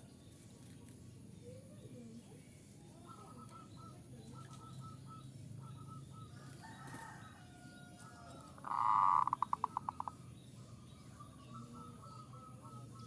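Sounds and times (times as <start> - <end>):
doves cooing softly: 3.0 - 10.2.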